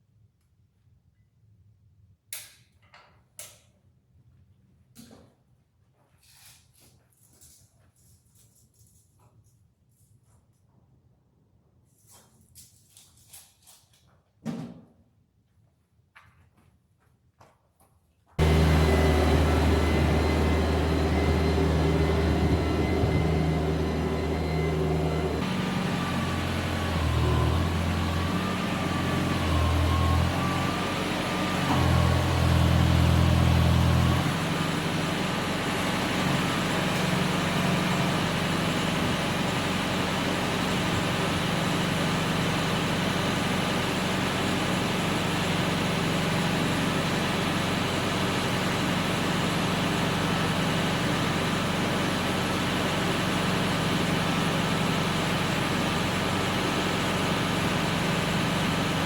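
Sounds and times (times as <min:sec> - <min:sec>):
tractor engine under load: 0:18.4 - 0:59.0.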